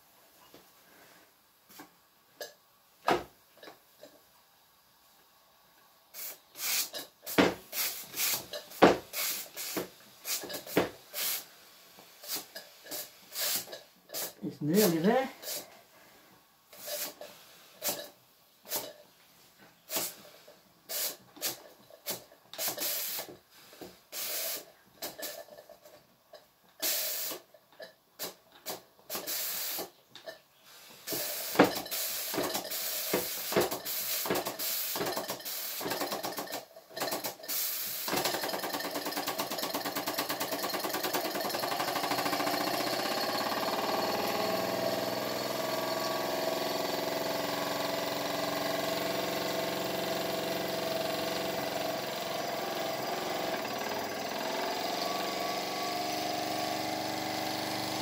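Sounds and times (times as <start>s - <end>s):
continuous steam hiss: 3.8s - 26.0s, 26.7s - 27.5s, 28.2s - 30.0s, 30.6s - 36.0s, 37.3s - 38.2s
model steam engine puffing: 19.9s - 25.5s, 26.8s - 27.5s, 28.2s - 29.9s, 31.0s - 41.6s.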